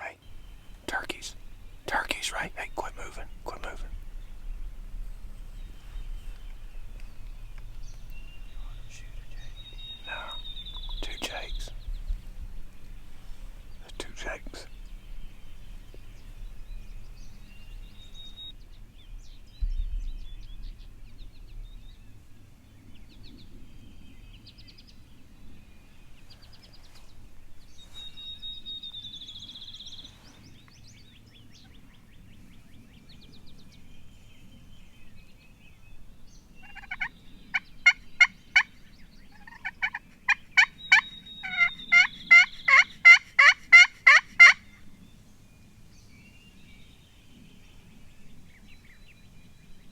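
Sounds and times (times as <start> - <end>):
turkey yelps: 36.7 - 38.7, 39.4 - 44.6.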